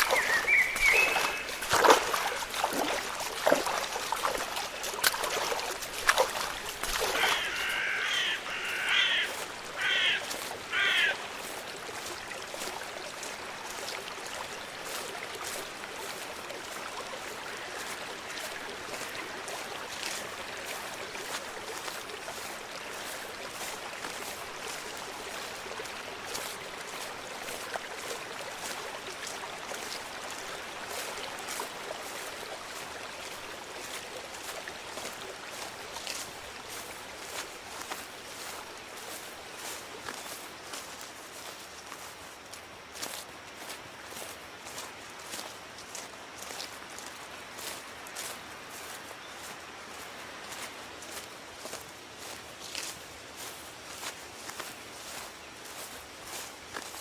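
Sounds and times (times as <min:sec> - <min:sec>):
bird calling: 0:00.0 - 0:03.0, 0:06.2 - 0:11.2
knocks and splashes: 0:00.0 - 0:07.8, 0:11.4 - 0:42.1
water trickling: 0:00.0 - 0:57.0.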